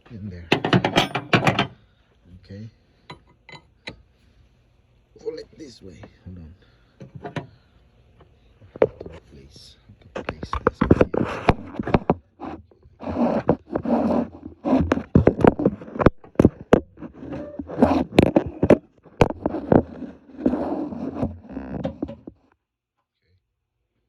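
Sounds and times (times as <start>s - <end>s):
metal tools clicking and knocking: 0.5s - 1.8s, 3.1s - 4.0s
scraping and rustling: 8.6s - 22.5s.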